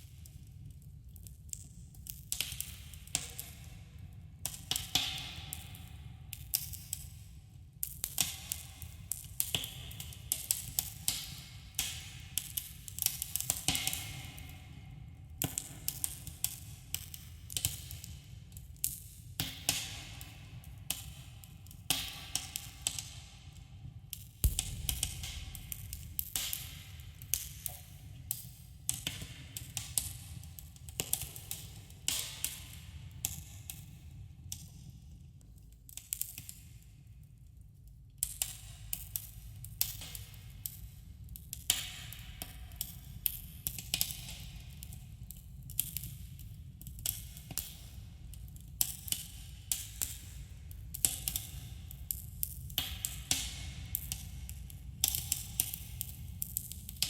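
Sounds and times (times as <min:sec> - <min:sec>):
low rumble: 0:24.4 - 0:27.3
fire pops and snaps: 0:24.4 - 0:30.1.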